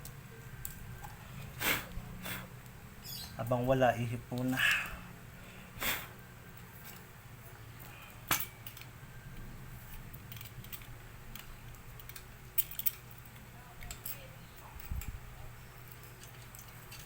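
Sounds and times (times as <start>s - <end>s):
steady low hum: 0.0s - 17.0s
puff of breath blown: 1.6s - 2.5s, 5.8s - 6.2s
light clicks of parts: 2.6s - 4.6s, 7.7s - 17.0s.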